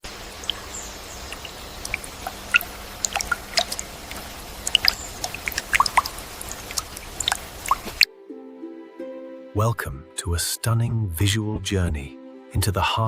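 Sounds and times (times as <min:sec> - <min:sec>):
steady background hiss: 0:00.0 - 0:08.0
water dripping: 0:00.0 - 0:08.1.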